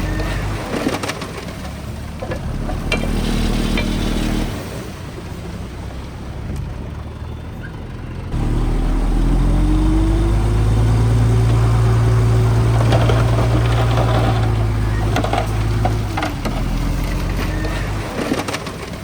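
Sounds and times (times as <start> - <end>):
diesel engine running: 0.0 - 19.0
louder engine revving: 2.4 - 4.9, 8.2 - 18.6.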